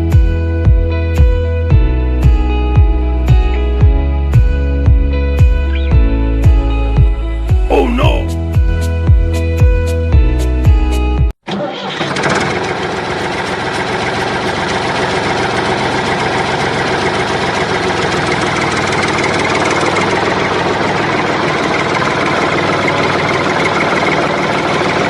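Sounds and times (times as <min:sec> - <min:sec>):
engine running steadily: 0:11.9 - 0:25.0.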